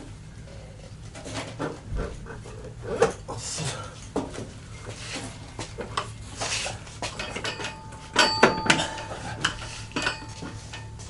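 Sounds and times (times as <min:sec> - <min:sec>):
loud ringing metallic clanks: 0:07.2 - 0:11.0
metal parts clinking and knocking: 0:07.2 - 0:11.0.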